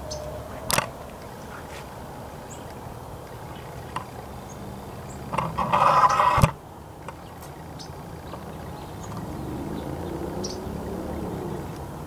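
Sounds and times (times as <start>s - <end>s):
faint bird chirps: 0.0s - 1.7s
loud bird call: 0.0s - 1.8s
outdoor ambience: 0.0s - 12.0s.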